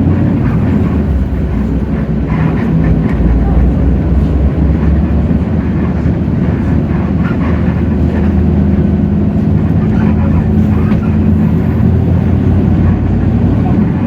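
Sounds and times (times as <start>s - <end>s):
bus diesel engine hum: 0.0s - 14.0s
road noise: 0.0s - 14.0s.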